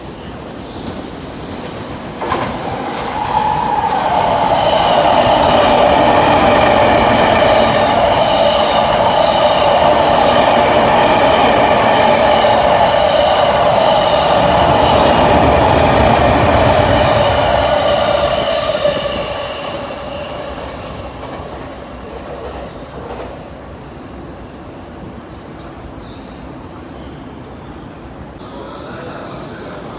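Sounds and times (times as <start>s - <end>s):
train wheels rushing on rails: 0.0s - 23.9s
clickety-clack over rail joints: 0.8s - 19.2s.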